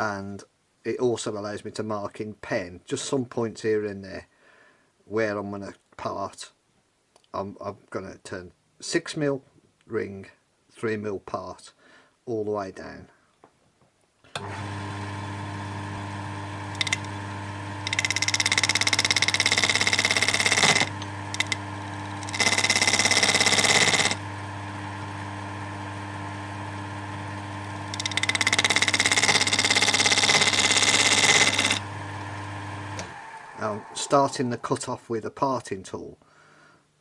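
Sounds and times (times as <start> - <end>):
wood lathe humming: 14.4 - 34.8
chisel hissing cut into wood: 17.8 - 21.6, 22.2 - 24.2, 27.9 - 31.8.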